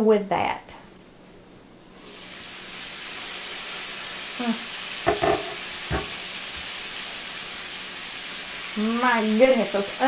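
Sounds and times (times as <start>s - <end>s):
meat and onions sizzling in skillet: 1.9s - 10.0s
sharp knock: 5.1s - 6.2s.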